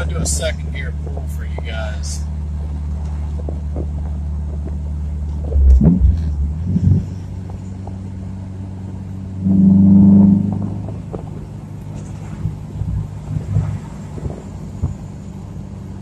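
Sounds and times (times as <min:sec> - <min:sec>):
car engine droning under acceleration: 0:00.0 - 0:16.0
loud low thumps: 0:05.4 - 0:07.2.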